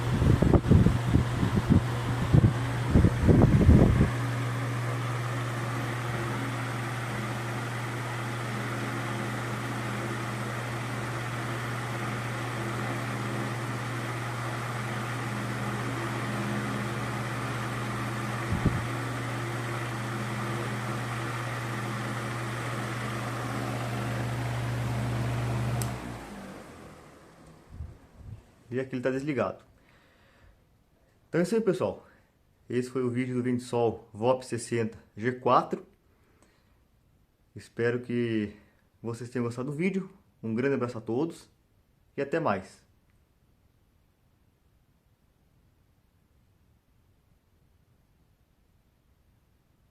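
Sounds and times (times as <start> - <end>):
air buffeting microphone: 0.0 - 4.2
rush of air from fan: 0.0 - 9.2, 11.4 - 28.7
fan motor hum: 0.0 - 29.4
click: 25.8 - 26.0.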